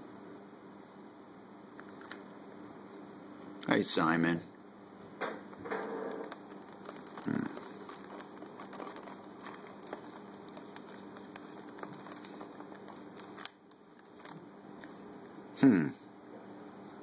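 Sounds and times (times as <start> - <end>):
parrot beak crinkling wrapper: 5.9 - 14.9.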